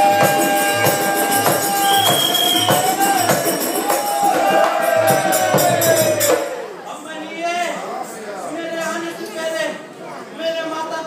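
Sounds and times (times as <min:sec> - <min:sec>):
jingling bells: 0:00.0 - 0:06.6
drum strokes: 0:00.0 - 0:06.7.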